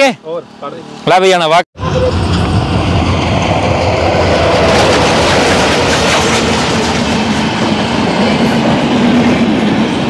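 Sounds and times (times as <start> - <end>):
diesel locomotive engine: 0.0 - 10.0
train wheels clattering on track: 2.2 - 10.0.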